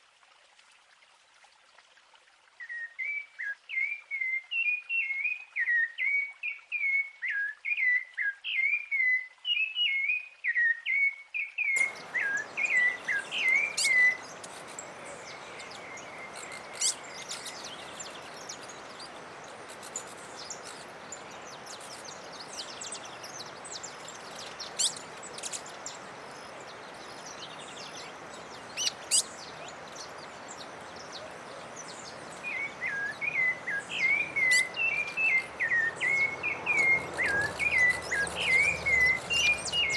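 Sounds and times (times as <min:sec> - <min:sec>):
bird whistling song: 0:02.6 - 0:18.8, 0:19.8 - 0:25.7, 0:28.8 - 0:29.7, 0:31.9 - 0:39.9
high bird chirps: 0:11.6 - 0:18.9, 0:32.5 - 0:39.9
forest hiss: 0:11.8 - 0:39.9.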